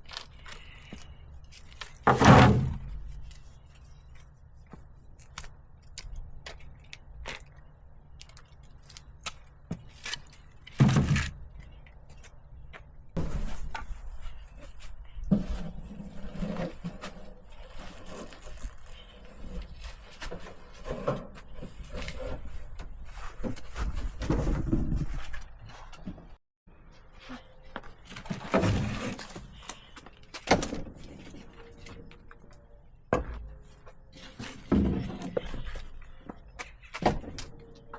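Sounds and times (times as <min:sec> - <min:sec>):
rough scraping rustle: 0:13.2 - 0:25.4.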